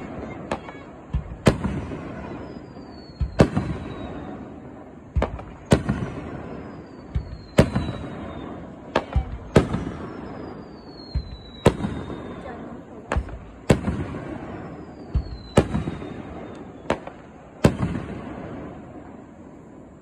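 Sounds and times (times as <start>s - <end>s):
firework shells bursting: 0.0s - 19.0s
high falling firework whistles: 0.0s - 20.0s.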